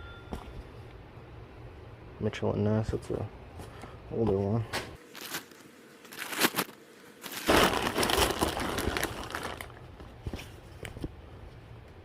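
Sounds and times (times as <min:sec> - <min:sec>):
packaging crinkling: 0:05.0 - 0:10.5.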